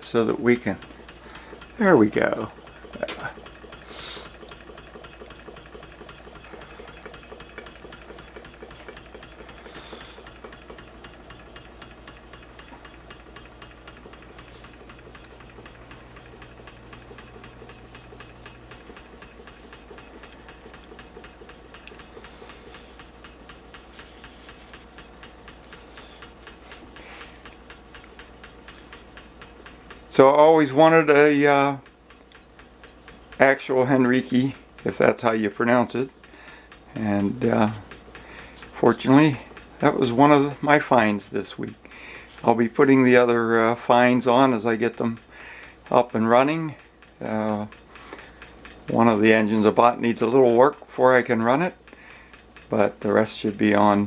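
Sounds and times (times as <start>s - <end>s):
hot air engine running: 0.0s - 21.3s
fast linkage clicking: 0.0s - 54.0s.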